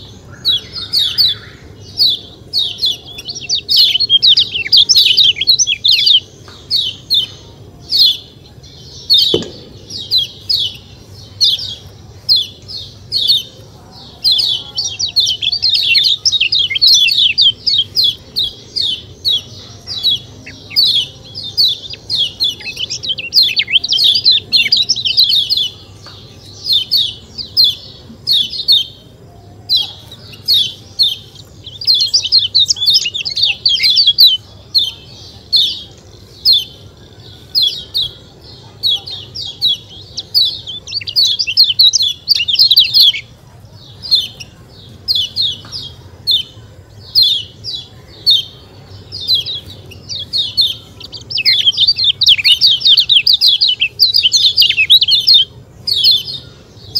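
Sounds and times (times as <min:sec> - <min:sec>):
bird chirping sharply: 0:00.0 - 0:13.6.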